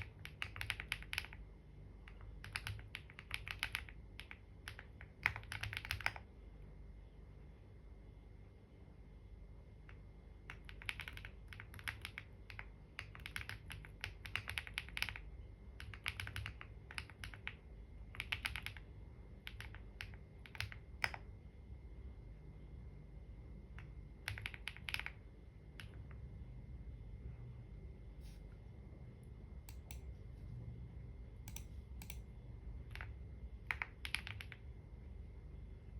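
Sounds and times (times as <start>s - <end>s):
keyboard typing: 0.0s - 6.3s, 9.9s - 21.3s, 23.7s - 26.2s, 29.7s - 30.1s, 31.4s - 34.7s.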